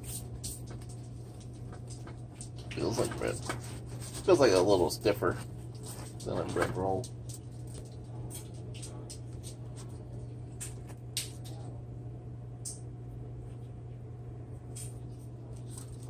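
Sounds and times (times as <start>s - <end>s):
steady low hum: 0.0s - 16.0s
soft clicks and rustles of handling: 5.2s - 11.8s.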